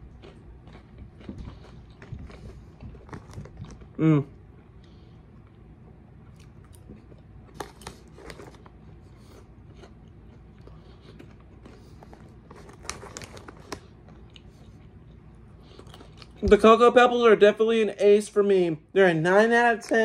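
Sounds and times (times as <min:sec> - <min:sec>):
chewing and crunching popcorn: 0:00.0 - 0:16.7
crinkly plastic snack bag: 0:07.5 - 0:08.8, 0:11.1 - 0:14.3.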